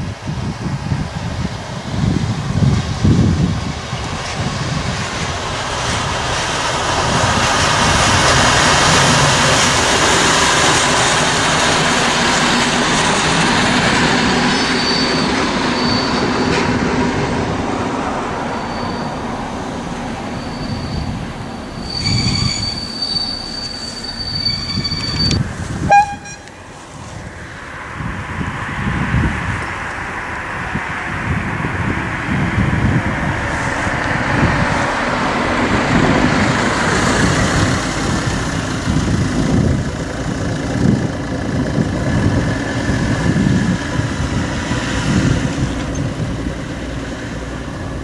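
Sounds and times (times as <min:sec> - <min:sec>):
diesel railcar passing: 0:00.0 - 0:48.0
train brakes squealing: 0:12.2 - 0:16.8, 0:18.2 - 0:26.5
train horn toot: 0:25.8 - 0:26.5.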